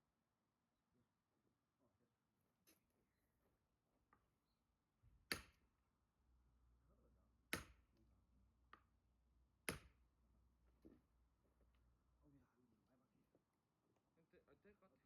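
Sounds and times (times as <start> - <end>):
axe splitting firewood: 5.1 - 5.7, 7.4 - 8.0, 9.6 - 10.1.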